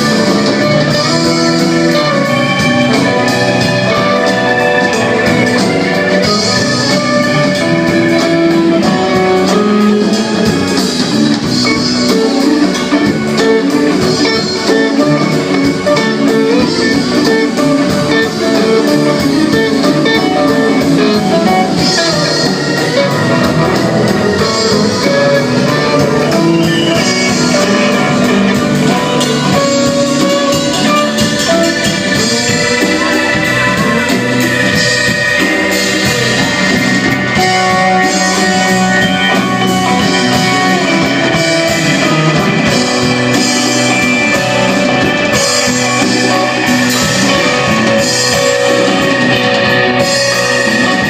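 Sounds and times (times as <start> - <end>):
drum kit cymbals: 0.0 - 51.0
electric guitar: 0.0 - 51.0
live band playing: 0.0 - 51.0.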